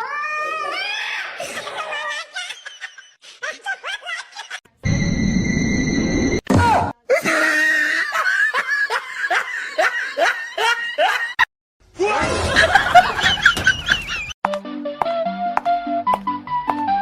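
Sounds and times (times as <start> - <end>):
voices laughing and squealing: 0.8 - 4.6, 12.0 - 14.4
person laughing: 12.2 - 14.4.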